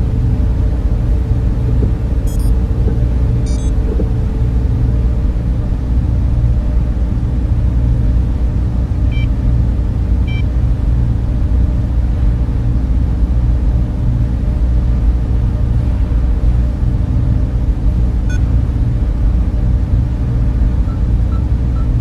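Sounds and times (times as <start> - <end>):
cooling fans humming: 0.0 - 22.0
faint high blips: 2.3 - 2.5, 3.4 - 3.7
faint steady tone: 2.3 - 2.6, 3.4 - 3.8.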